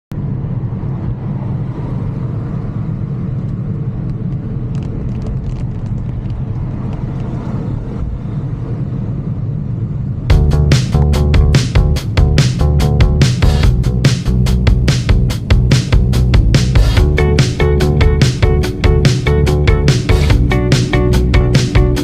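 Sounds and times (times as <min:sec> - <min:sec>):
wind and road rumble: 0:00.1 - 0:22.0
music with strong beat: 0:10.3 - 0:22.0.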